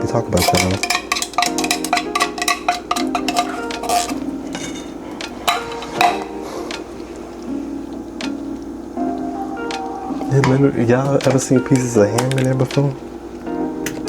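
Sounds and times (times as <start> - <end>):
soft background music: 0.0 - 14.0
metal spoon clinking on pot: 0.4 - 4.9, 5.5 - 6.4.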